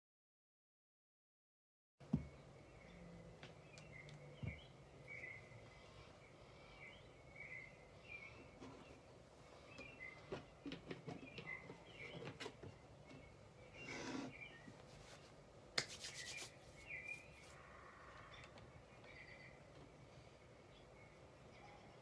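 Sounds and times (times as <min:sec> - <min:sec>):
small birds chirping: 0:02.0 - 0:22.0.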